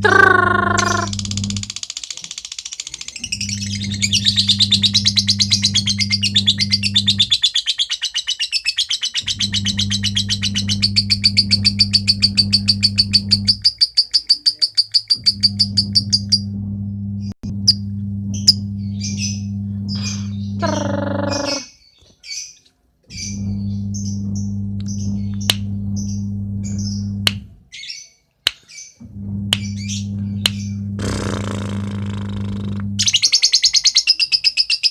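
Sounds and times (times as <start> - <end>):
low steady hum: 0.0 - 1.8, 3.3 - 7.4, 9.3 - 13.6, 15.2 - 21.7, 23.1 - 27.6, 29.0 - 33.1
bird chirps: 0.0 - 16.4, 17.6 - 29.0
lovebird chattering trill: 0.0 - 16.4, 18.4 - 21.8.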